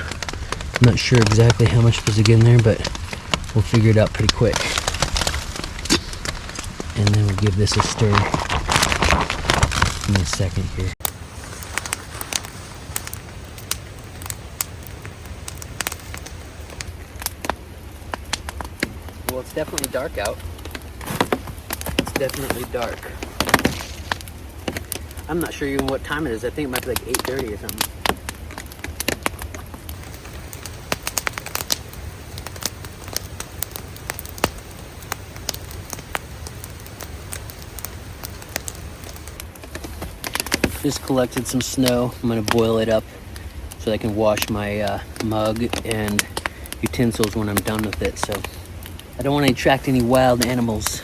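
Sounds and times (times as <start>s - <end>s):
campfire crackling: 0.0s - 51.0s
low fire rumble: 0.0s - 51.0s
sharp fire pops: 0.0s - 51.0s
low rumble: 2.9s - 17.1s.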